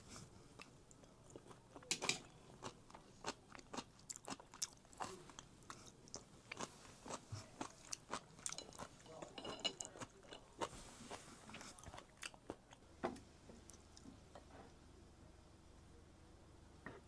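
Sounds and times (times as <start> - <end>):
person chewing food: 0.6 - 12.8.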